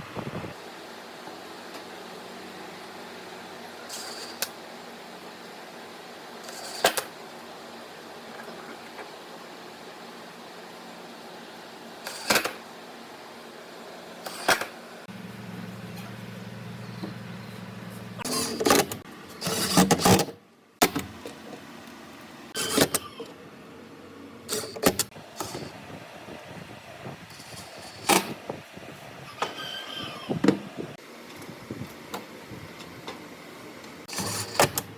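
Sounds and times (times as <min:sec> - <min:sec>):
low electric hum: 0:15.0 - 0:19.7.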